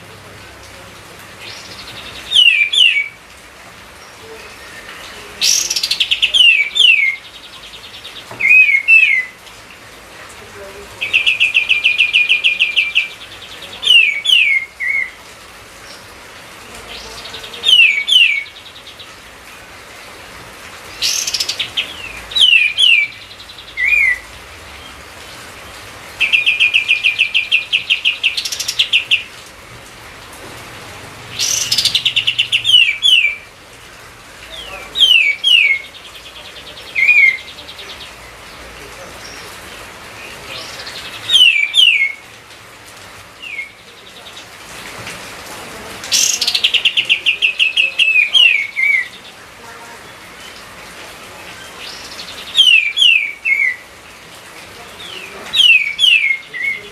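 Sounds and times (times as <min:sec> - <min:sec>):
songbird singing trills and whistles: 0:01.4 - 0:03.2, 0:04.0 - 0:09.4, 0:11.0 - 0:15.2, 0:16.9 - 0:19.2, 0:20.9 - 0:25.0, 0:26.2 - 0:29.3, 0:31.3 - 0:33.5, 0:34.5 - 0:38.4, 0:40.2 - 0:42.2, 0:43.4 - 0:44.4, 0:46.1 - 0:49.3, 0:51.6 - 0:53.8, 0:55.0 - 0:56.9.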